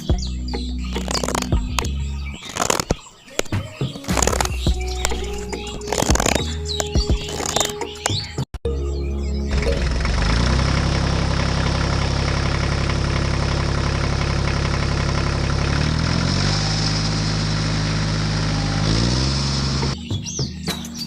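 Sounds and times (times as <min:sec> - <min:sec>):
tractor engine idling: 0:09.5 - 0:20.0.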